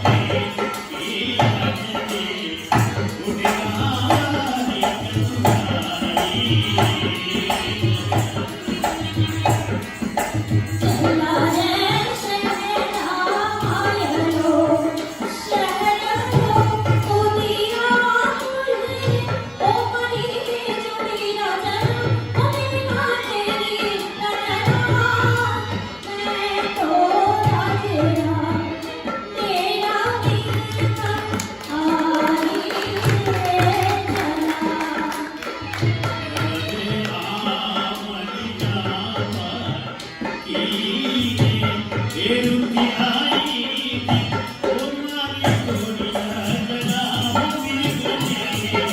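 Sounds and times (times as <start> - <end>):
jingling percussion: 0.0 - 48.9
hand drum beat: 30.5 - 37.2.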